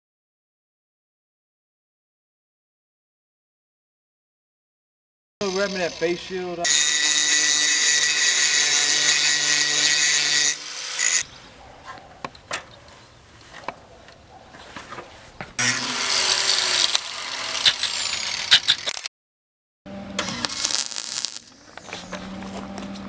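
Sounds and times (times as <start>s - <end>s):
angle grinder on steel: 5.4s - 11.2s, 15.6s - 19.1s, 20.2s - 21.5s.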